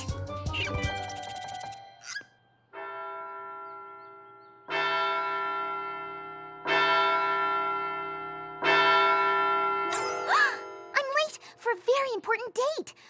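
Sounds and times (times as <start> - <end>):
large bell tolling: 2.8 - 11.0.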